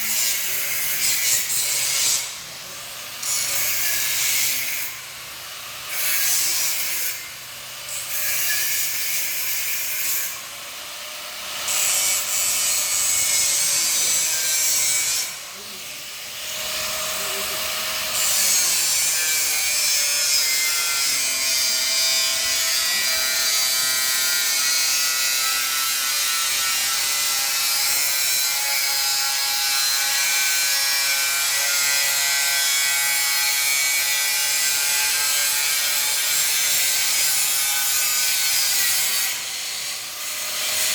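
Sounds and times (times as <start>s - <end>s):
grinder disc cutting steel: 0.0s - 40.9s.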